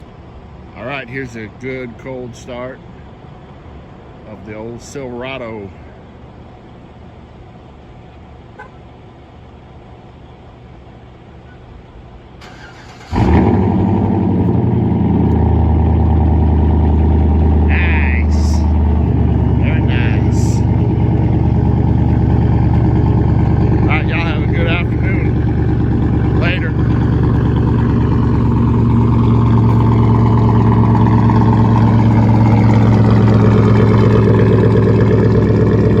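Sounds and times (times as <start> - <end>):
truck engine cold start: 12.4 - 17.0
engine fast idle: 12.4 - 36.0.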